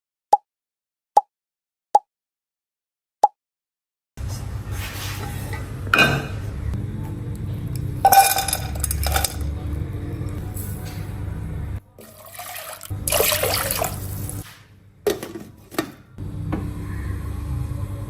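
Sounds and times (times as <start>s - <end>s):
low kitchen hum: 4.2s - 18.0s
liquid pouring into a pot: 12.0s - 14.4s.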